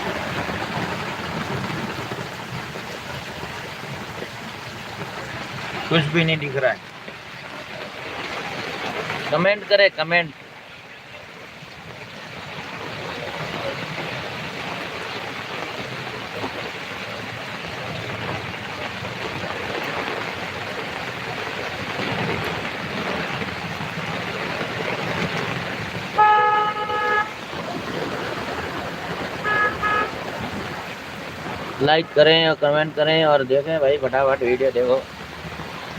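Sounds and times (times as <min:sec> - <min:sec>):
heavy rain hiss: 0:00.0 - 0:35.9
wet street traffic: 0:00.0 - 0:35.9
vehicle horn honking: 0:26.2 - 0:27.4, 0:29.4 - 0:30.2.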